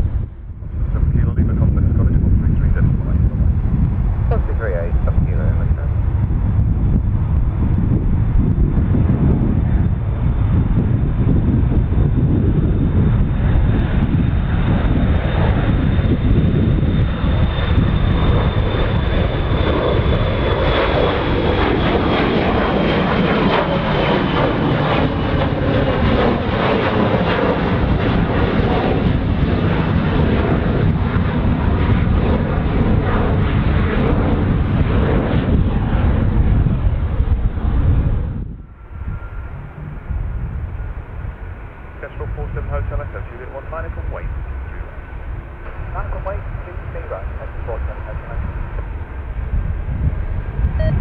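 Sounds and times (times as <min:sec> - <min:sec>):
jet engines roaring: 0:00.0 - 0:51.0.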